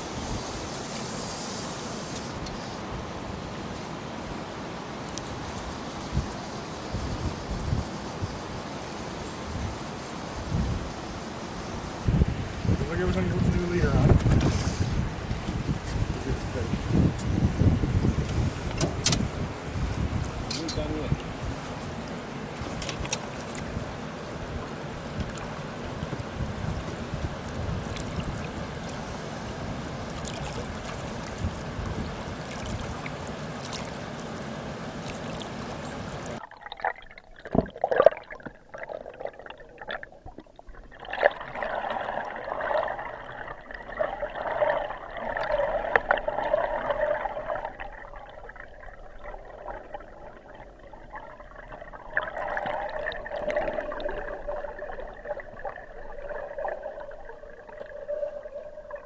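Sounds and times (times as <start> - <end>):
flowing river water: 0.0 - 59.0
wind on microphone: 5.3 - 33.3
muffled underwater current: 12.1 - 34.0, 35.0 - 59.0.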